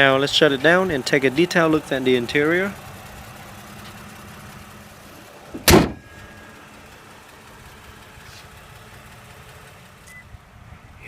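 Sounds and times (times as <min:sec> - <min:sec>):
car engine idling: 0:00.0 - 0:11.0
loud thump: 0:05.5 - 0:06.1.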